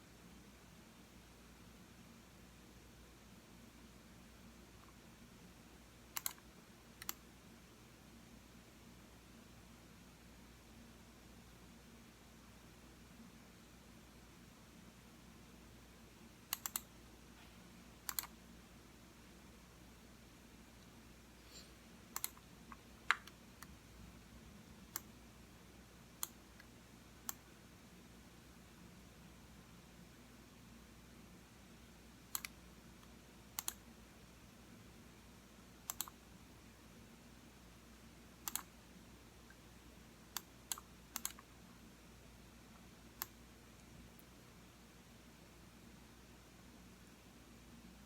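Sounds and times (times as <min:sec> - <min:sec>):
computer mouse clicking: 0:06.1 - 0:07.2, 0:16.5 - 0:16.9, 0:18.0 - 0:18.4, 0:22.1 - 0:23.8, 0:24.9 - 0:25.1, 0:26.2 - 0:27.5, 0:32.3 - 0:32.6, 0:33.6 - 0:33.8, 0:35.9 - 0:36.2, 0:38.4 - 0:38.7, 0:40.3 - 0:41.5, 0:43.2 - 0:44.3.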